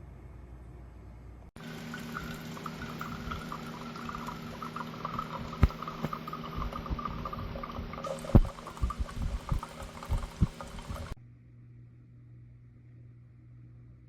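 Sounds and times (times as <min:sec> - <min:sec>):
steady hum: 0:00.0 - 0:14.0
coffee maker water gurgling: 0:01.6 - 0:11.2.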